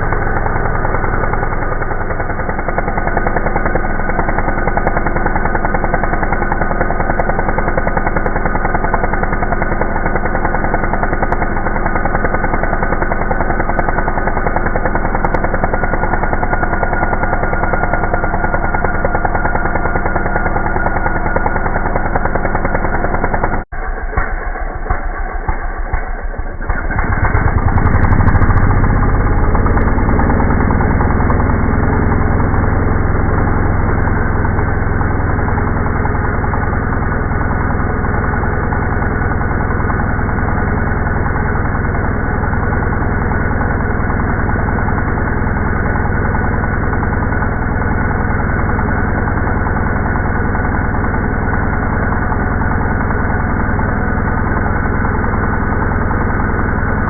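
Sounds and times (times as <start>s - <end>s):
two-stroke engine drone: 0.0s - 57.0s.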